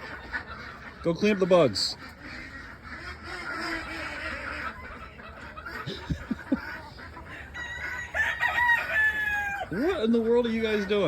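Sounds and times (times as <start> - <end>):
chickens clucking: 0.0 - 11.0
rooster crowing: 7.3 - 9.8.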